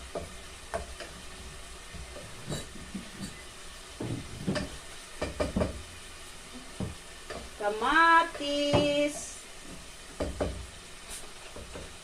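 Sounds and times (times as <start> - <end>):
vegetables sizzling in a pan: 0.0 - 12.0
spatula scraping a pan: 2.0 - 3.5.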